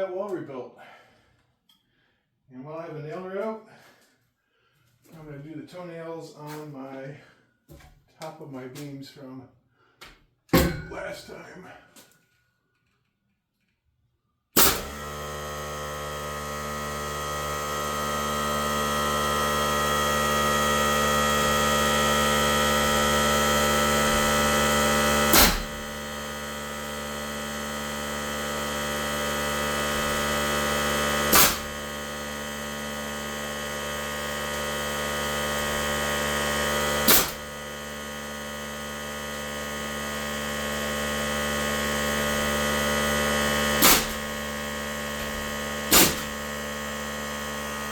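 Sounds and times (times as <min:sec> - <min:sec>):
nailer firing: 0:14.6 - 0:16.9, 0:21.6 - 0:39.9, 0:40.7 - 0:47.9
air compressor running: 0:14.6 - 0:47.9.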